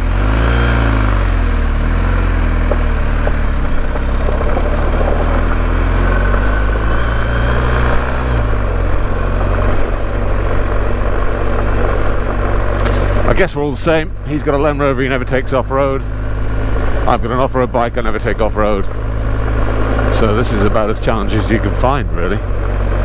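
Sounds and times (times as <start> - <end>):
motorcycle engine at low speed: 0.0 - 23.0
tyres on gravel: 0.0 - 23.0
wind noise: 1.5 - 15.2.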